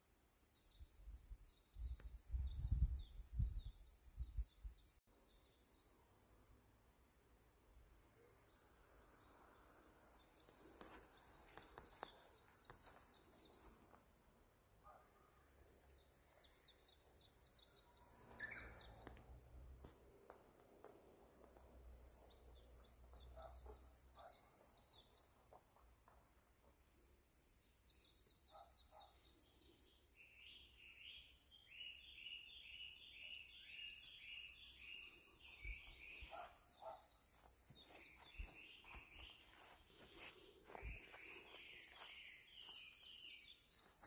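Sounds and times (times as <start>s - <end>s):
rapid high bird chirps: 32.2s - 44.0s.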